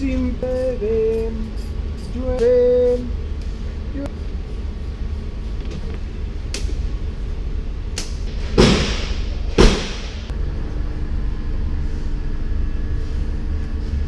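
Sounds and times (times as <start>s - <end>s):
low hum: 0.0s - 14.0s
heavy thuds: 8.3s - 10.3s.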